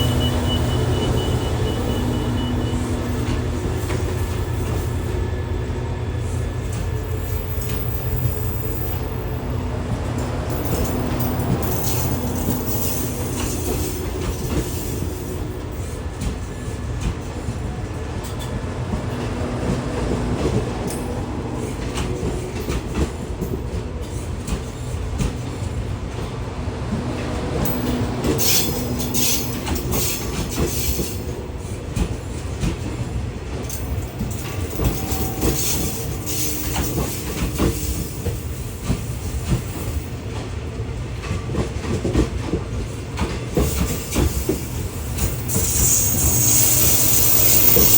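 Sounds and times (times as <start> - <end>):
train rumbling on rails: 0.0 - 47.9
high-pitched hiss or squeal: 45.1 - 47.9.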